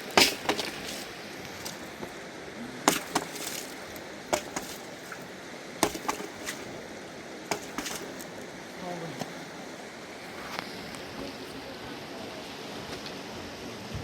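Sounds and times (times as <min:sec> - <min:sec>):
sharp knocks: 0:00.0 - 0:01.0, 0:02.8 - 0:06.8, 0:07.5 - 0:08.3
flowing water: 0:00.0 - 0:14.0.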